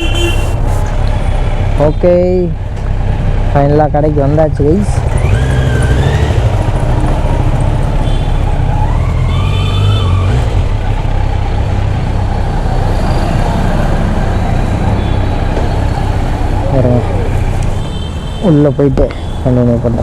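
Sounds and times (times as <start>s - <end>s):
motorcycle engine revving: 2.8s - 17.8s.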